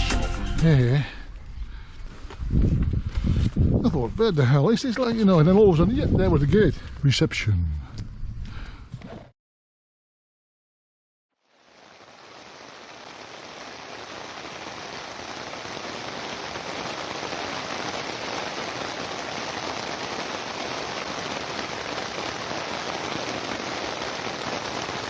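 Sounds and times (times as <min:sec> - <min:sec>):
heavy rain falling: 0:11.5 - 0:25.0.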